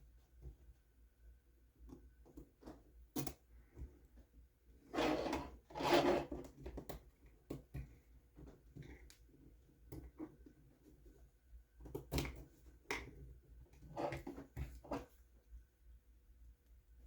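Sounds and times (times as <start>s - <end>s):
short rubbing scrapes: 4.9s - 6.4s
light clicks and knocks of plastic parts: 6.4s - 11.2s.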